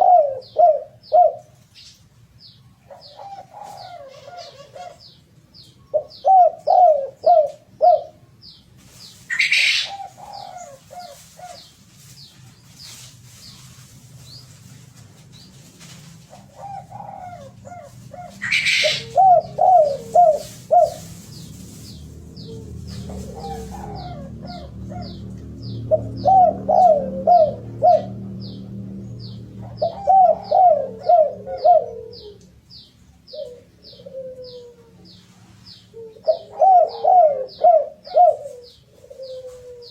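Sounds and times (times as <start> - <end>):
dove cooing: 0.0 - 1.6, 2.9 - 5.2, 5.9 - 8.2, 9.2 - 11.7, 16.2 - 28.9, 29.5 - 32.5, 33.3 - 35.2, 35.9 - 39.9
rustling: 8.7 - 24.5.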